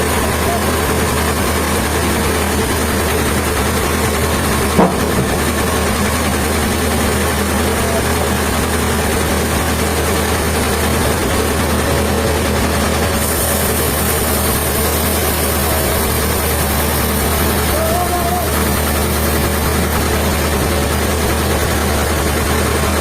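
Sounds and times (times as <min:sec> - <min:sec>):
sawmill machinery humming: 0:00.0 - 0:23.0
short knock: 0:04.7 - 0:06.0.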